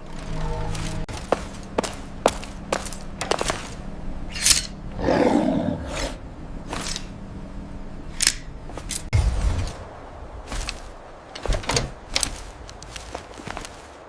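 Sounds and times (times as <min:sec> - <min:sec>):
creature growl: 0:05.0 - 0:06.2.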